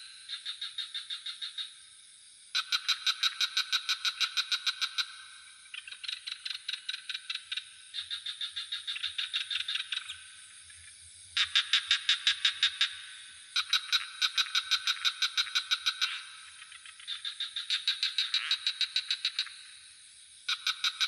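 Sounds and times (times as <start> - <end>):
frogs calling in pulsed trills: 0.0 - 21.0
high insect drone: 0.0 - 21.0.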